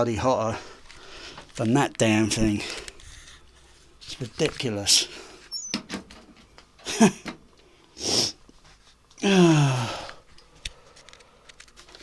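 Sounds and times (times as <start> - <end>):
man sniffing: 7.9 - 8.4
man grunting: 9.2 - 10.0
man sighing: 9.2 - 10.2.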